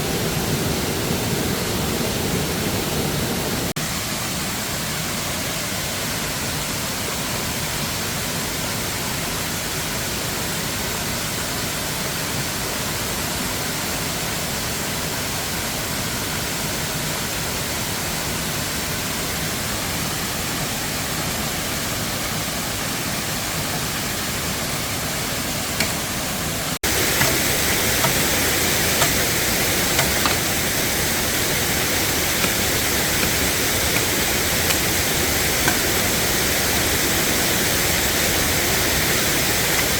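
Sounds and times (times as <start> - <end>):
waterfall rushing: 16.4 - 39.9.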